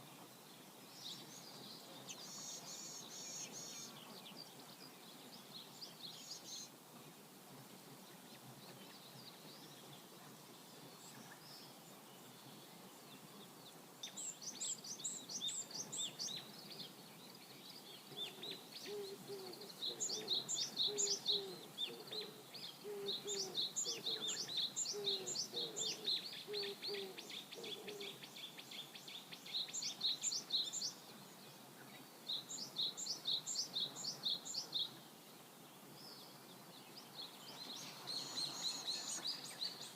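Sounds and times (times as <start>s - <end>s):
songbirds singing: 0.0s - 39.9s
low repeated bird call: 17.8s - 31.1s.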